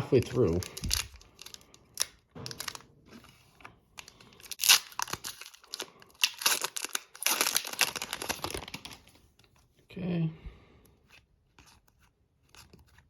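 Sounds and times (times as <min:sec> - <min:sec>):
card pack wrapper tearing: 0:00.2 - 0:02.8, 0:04.0 - 0:09.1.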